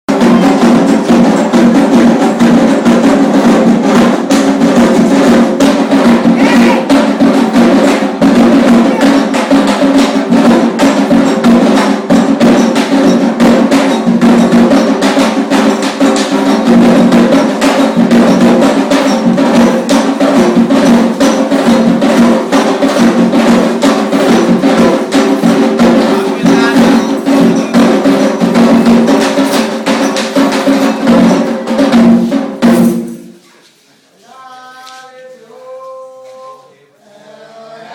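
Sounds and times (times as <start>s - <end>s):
hand drums playing: 0.1s - 33.4s
voices singing: 6.2s - 9.6s, 34.1s - 37.9s.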